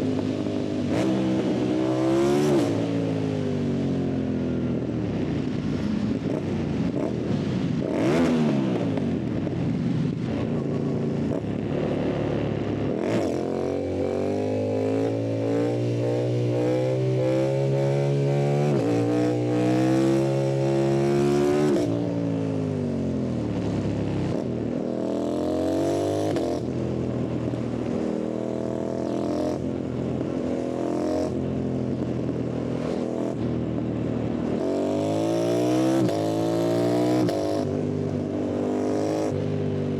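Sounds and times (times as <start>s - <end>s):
motorcycle engine revving through gears: 0.0s - 4.0s, 6.2s - 39.9s.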